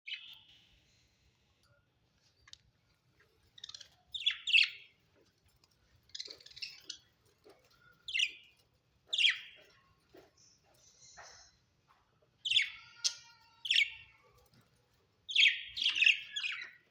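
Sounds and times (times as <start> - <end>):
budgerigars chirping: 3.6 - 4.9, 9.1 - 9.6, 15.3 - 16.9.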